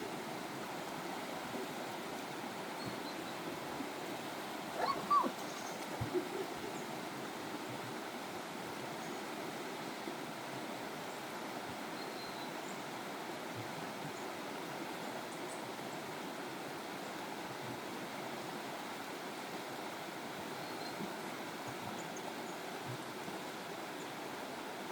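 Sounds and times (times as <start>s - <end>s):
flowing water rushing: 0.0s - 24.9s
animal calls: 4.8s - 6.6s.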